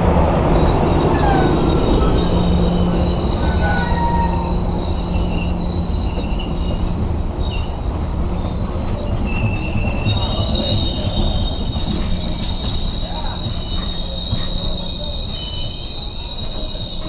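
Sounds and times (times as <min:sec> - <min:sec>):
train carriages rumbling past: 0:00.0 - 0:17.0
high-pitched wheel squeals: 0:00.3 - 0:17.0.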